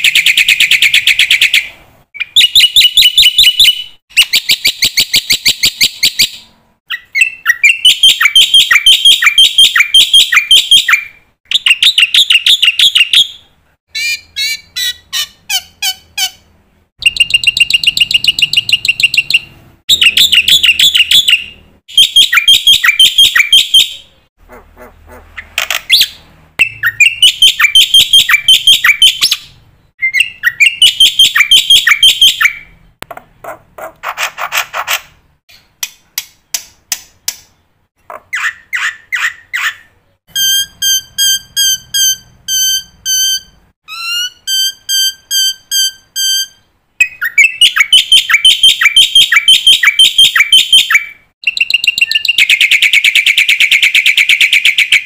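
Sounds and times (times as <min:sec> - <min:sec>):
repeated whistled bird notes: 0:00.0 - 0:24.3, 0:25.4 - 0:32.9, 0:38.4 - 0:55.0
starling chattering song: 0:13.9 - 0:23.8.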